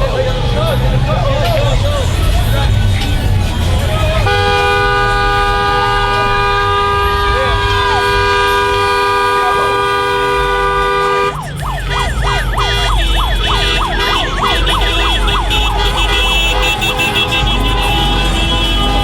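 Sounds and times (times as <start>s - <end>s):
low traffic rumble: 0.0s - 19.0s
vehicle horn blast: 4.2s - 19.0s
yelping siren: 10.4s - 16.7s.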